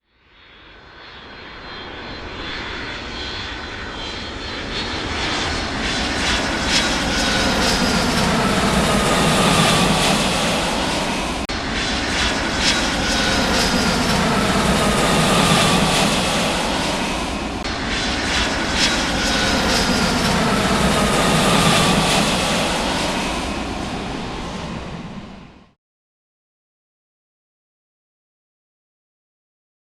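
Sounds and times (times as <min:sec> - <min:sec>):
aircraft engines passing: 0:00.3 - 0:25.8.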